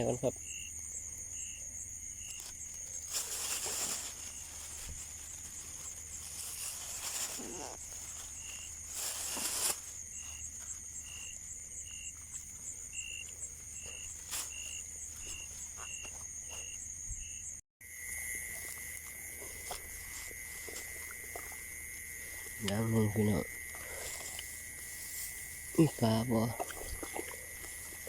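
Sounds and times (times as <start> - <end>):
insect chirps: 0.0 - 28.0
insects trilling: 0.0 - 28.0
low insect buzz: 0.0 - 28.0
faint rustles and knocks: 2.3 - 17.3.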